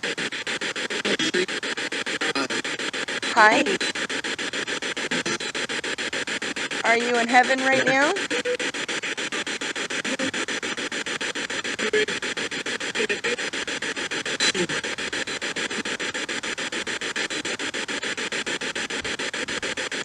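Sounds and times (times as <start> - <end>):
pulsing radio static: 0.0 - 20.0
radio voices: 0.7 - 16.0.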